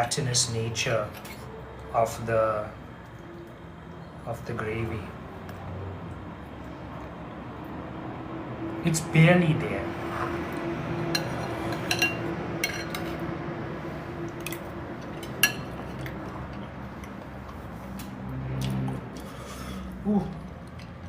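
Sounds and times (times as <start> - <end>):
utensil clinking against a dish: 11.1 - 13.2, 14.4 - 16.7.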